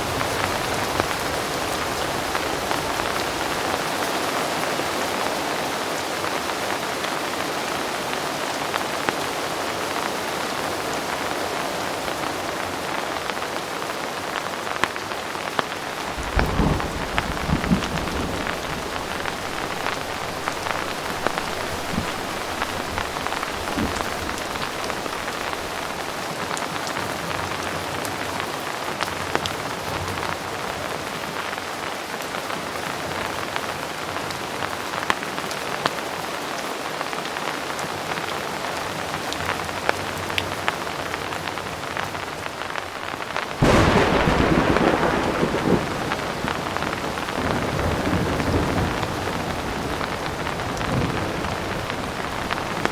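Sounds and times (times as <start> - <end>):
heavy rain: 0.0 - 52.9
thunder clap and rumble: 15.9 - 26.2, 43.6 - 52.9.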